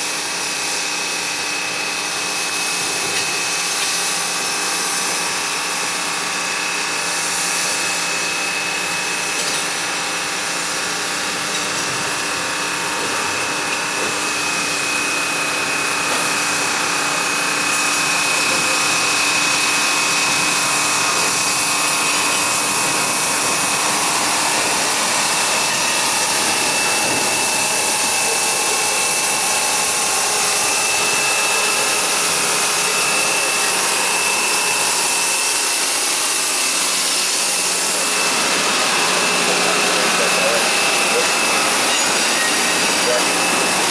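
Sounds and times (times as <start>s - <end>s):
machinery whining over hiss: 9.8s - 43.9s.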